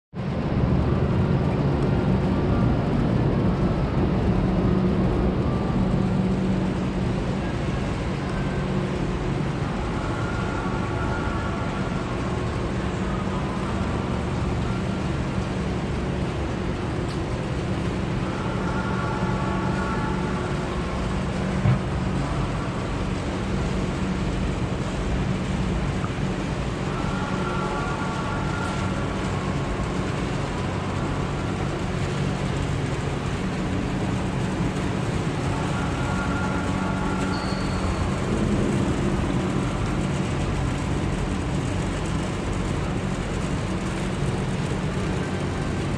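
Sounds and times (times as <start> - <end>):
car engine idling: 4.9 - 45.9.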